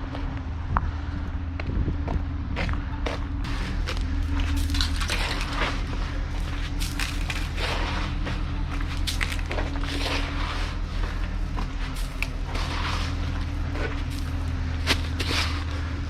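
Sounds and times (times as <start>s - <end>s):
vehicle engine running: 0.0s - 16.0s
crunching and scraping in snow: 2.6s - 16.0s.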